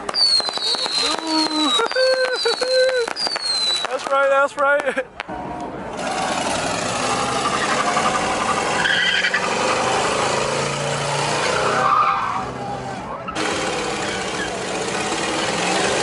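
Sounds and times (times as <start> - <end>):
car engine running hard: 5.3 - 16.0
car tires screeching: 5.7 - 16.0.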